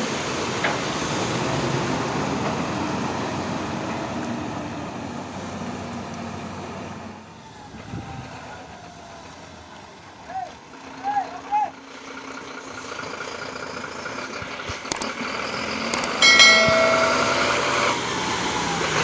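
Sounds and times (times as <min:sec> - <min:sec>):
diesel vehicle engine hum: 0:00.0 - 0:19.0.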